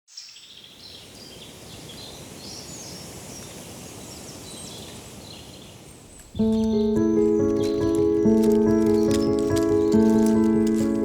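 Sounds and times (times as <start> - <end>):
small birds chirping: 0.1 - 11.0
steady background hiss: 0.2 - 8.7.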